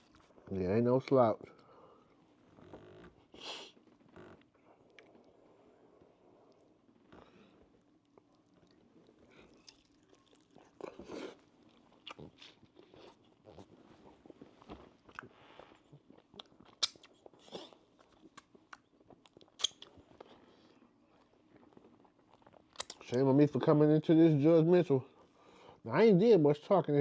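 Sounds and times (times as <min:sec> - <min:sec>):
person chewing food: 0:06.5 - 0:23.1.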